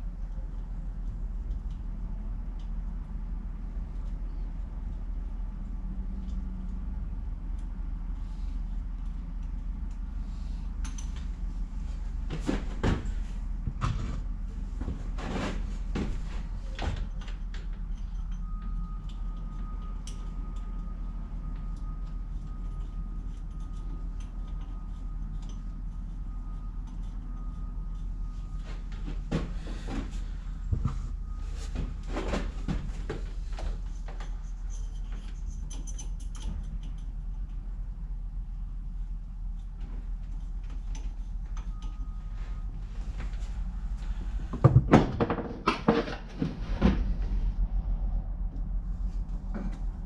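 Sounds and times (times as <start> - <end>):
steady low hum: 0.0 - 50.0
metal tools knocking and clinking: 34.5 - 37.1.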